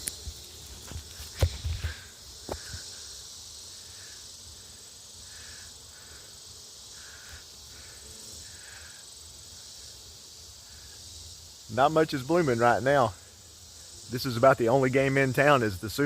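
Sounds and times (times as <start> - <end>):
sharp knocks and rustles: 0.0 - 2.9
high-pitched insect chorus: 0.0 - 16.0.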